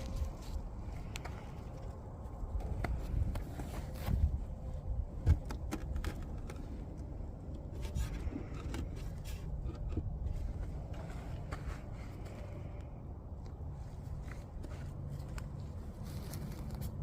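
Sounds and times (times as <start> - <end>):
handling scrapes clicks and knocks: 0.0 - 17.0
steady low rumble: 0.0 - 17.0.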